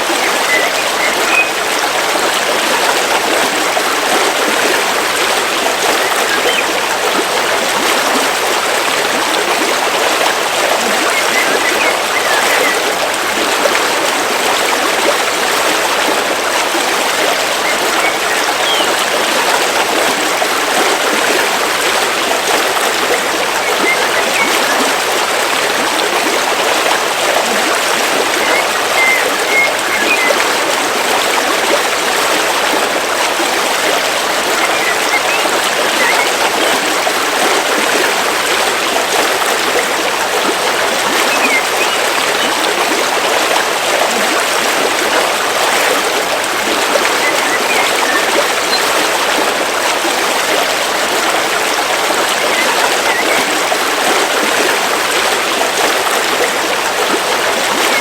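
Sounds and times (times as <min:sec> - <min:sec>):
stream flowing over rocks: 0:00.0 - 0:58.0
faint high chirps: 0:00.2 - 0:01.6, 0:41.3 - 0:42.5.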